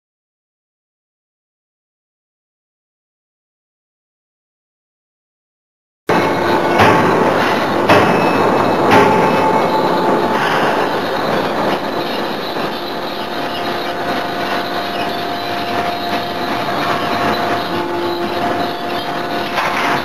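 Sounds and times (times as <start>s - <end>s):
faint steady whine: 6.1s - 20.0s
machinery din: 6.1s - 20.0s.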